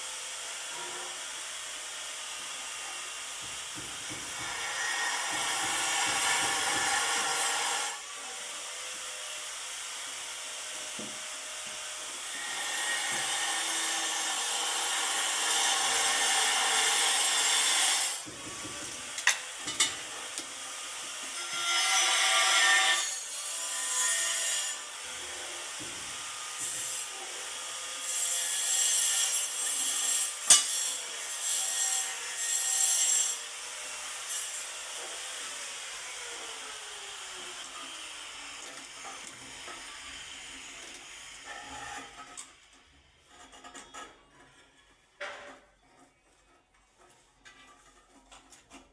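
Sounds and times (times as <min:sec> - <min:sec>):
hand tool rasping on board: 0:03.4 - 0:07.9, 0:45.5 - 0:48.9.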